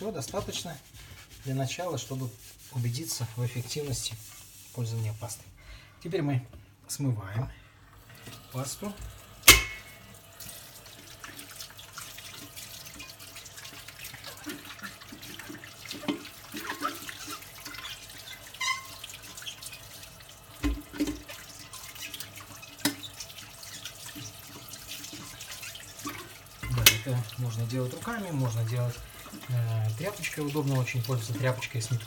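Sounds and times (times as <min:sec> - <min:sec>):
tap water running over kettle: 0:07.9 - 0:32.0
metal clunking against sink: 0:09.4 - 0:10.0.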